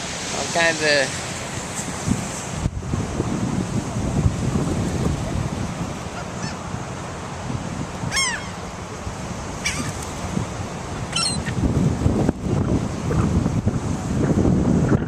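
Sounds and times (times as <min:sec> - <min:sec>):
wind rumble on microphone: 0:00.0 - 0:15.0
seagulls calling: 0:05.2 - 0:06.8, 0:08.0 - 0:08.8, 0:09.6 - 0:10.1, 0:10.9 - 0:11.6.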